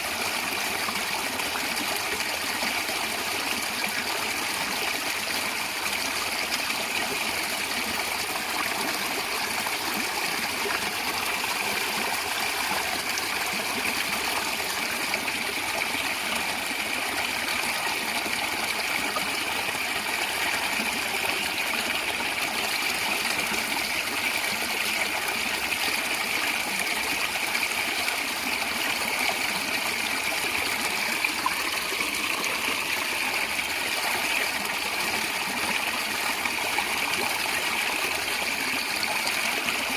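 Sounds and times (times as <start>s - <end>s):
stream gurgling over stones: 0.0s - 39.9s.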